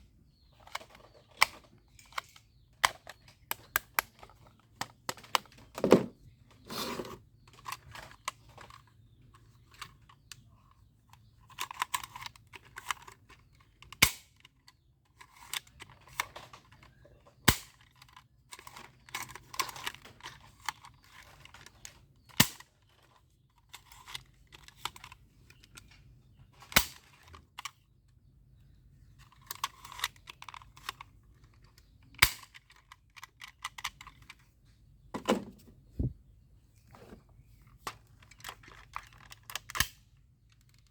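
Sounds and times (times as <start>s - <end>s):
toy guns clicking and rattling: 0.5s - 5.8s, 7.5s - 26.0s, 29.2s - 34.5s, 37.8s - 40.9s.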